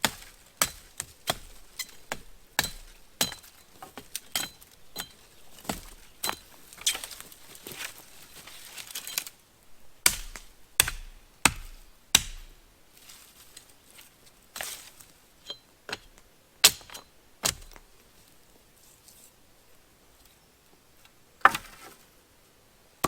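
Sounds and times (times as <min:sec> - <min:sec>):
tool striking wood: 0:10.0 - 0:12.6.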